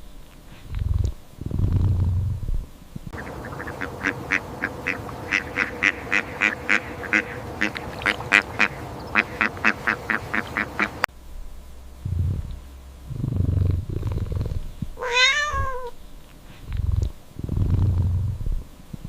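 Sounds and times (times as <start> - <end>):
low rumble: 0.7 - 18.8
ducks quacking: 3.2 - 11.1.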